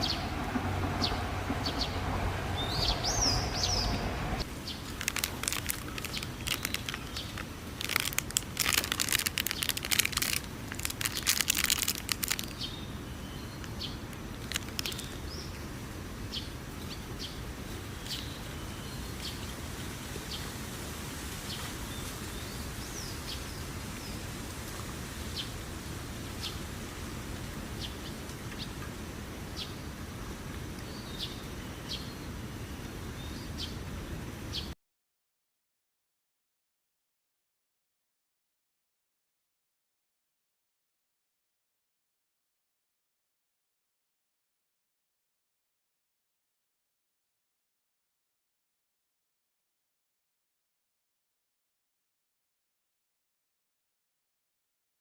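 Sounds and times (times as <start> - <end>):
small birds chirping: 2.6 - 20.5, 30.8 - 33.9
rustling handling noise: 4.8 - 12.6, 14.1 - 15.3.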